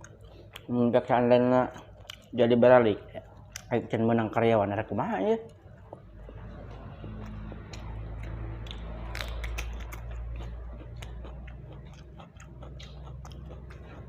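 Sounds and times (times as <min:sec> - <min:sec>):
low steady hum: 0:00.0 - 0:14.0
chewing and mouth smacks: 0:01.7 - 0:02.4, 0:03.1 - 0:03.8, 0:05.4 - 0:14.0.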